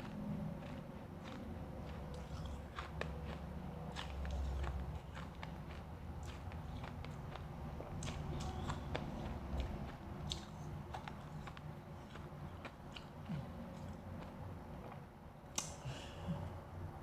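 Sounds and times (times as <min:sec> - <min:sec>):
chewing ice crunches: 0:00.0 - 0:15.0.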